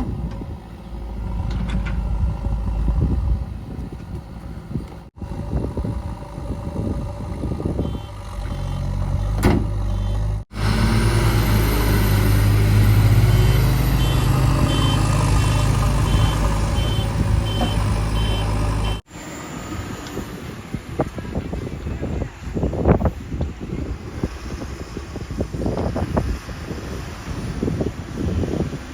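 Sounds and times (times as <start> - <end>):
diesel engine working under load: 0.0 - 27.5
reversing alarm beeping: 9.9 - 10.4, 12.9 - 19.0.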